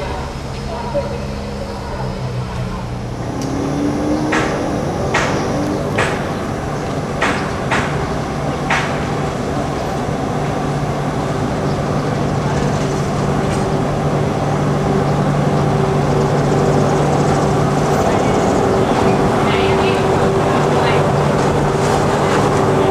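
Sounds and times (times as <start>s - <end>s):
diesel locomotive engine humming: 0.0s - 22.9s
sharp knocks: 4.2s - 6.6s, 7.2s - 9.2s.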